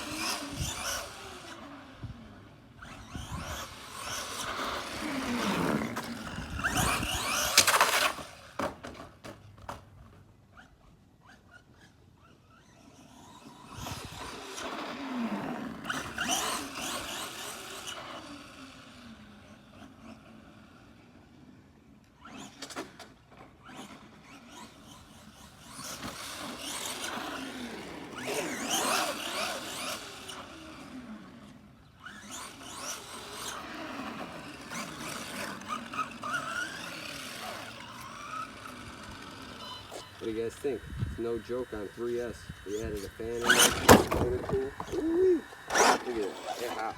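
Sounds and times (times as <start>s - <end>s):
electric motor whining: 0.0s - 46.9s
tyre noise on pavement: 2.8s - 10.4s, 42.8s - 46.9s.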